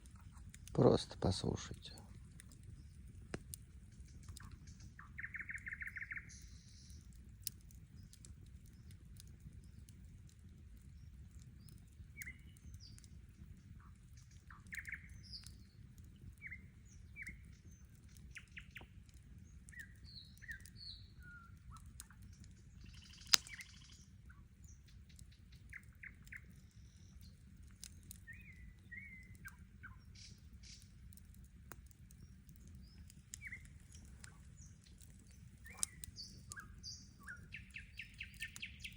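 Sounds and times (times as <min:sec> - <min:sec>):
campfire crackling: 0:00.0 - 0:38.9
songbirds chirping: 0:00.0 - 0:38.9.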